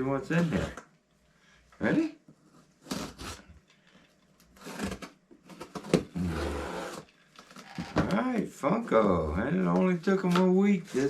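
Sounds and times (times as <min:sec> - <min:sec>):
tape and cardboard tearing: 0:02.8 - 0:03.6, 0:04.4 - 0:07.7.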